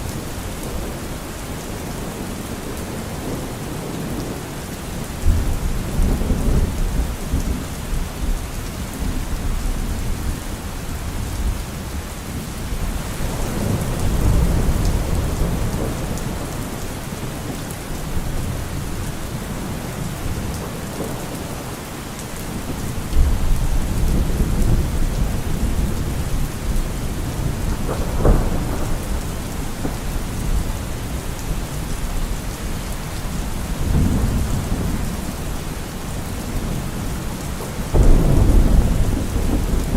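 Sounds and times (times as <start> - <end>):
heavy rain: 0.0 - 39.9
rolling thunder: 12.3 - 21.4, 22.6 - 39.9
thunder crack: 27.2 - 30.6, 37.9 - 39.9.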